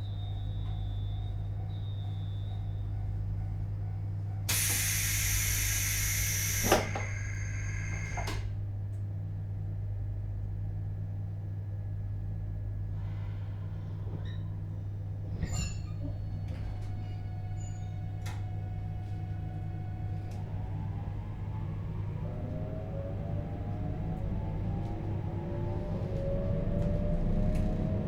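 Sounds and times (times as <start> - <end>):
train electrical hum: 0.0 - 28.0
compressed air hiss: 4.5 - 8.3.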